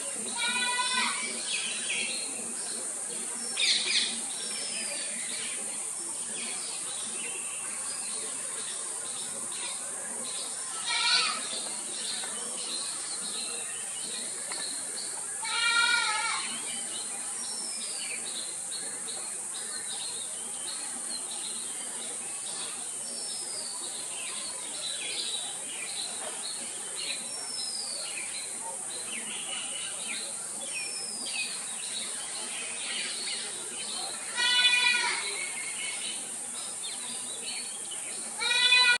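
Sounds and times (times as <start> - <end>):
small birds chirping: 0.0 - 39.0
goat bleating: 15.4 - 16.4, 34.4 - 35.3, 38.4 - 39.0.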